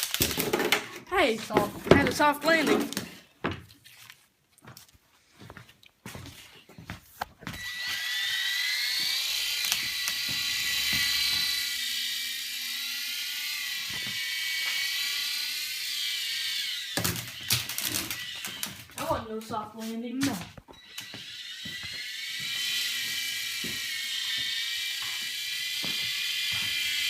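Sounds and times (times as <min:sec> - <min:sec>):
toy helicopter motor whine: 0:00.0 - 0:00.6, 0:07.5 - 0:19.6, 0:20.8 - 0:27.0
toy helicopter crashing knocks: 0:00.0 - 0:01.0, 0:01.6 - 0:03.0, 0:07.6 - 0:12.7, 0:13.4 - 0:18.9.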